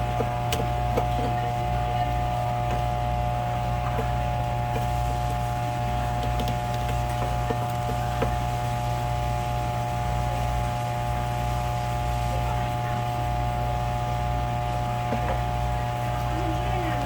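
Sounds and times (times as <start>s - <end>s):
machine hum with low throb: 0.0s - 17.0s.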